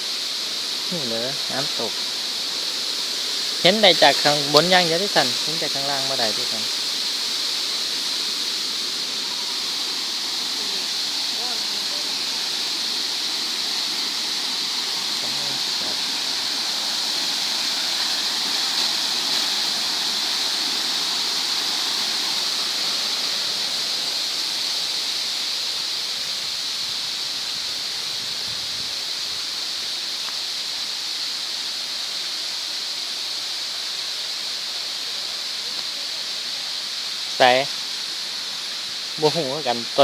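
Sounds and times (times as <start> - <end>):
high-pitched steady hiss: 0.0 - 40.0
waterfall rushing: 0.0 - 40.0.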